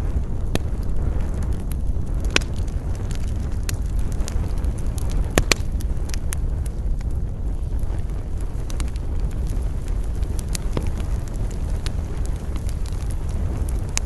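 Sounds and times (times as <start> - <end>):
campfire crackling and popping: 0.0 - 14.0
low wind rumble: 0.0 - 14.0.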